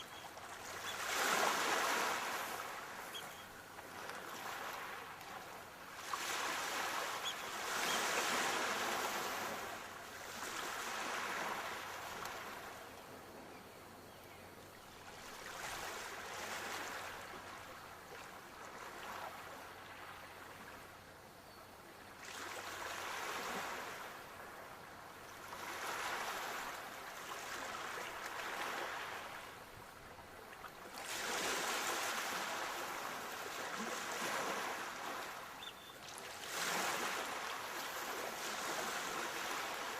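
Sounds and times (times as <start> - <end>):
sea waves breaking: 0.0 - 12.6, 25.5 - 29.6, 30.8 - 39.9.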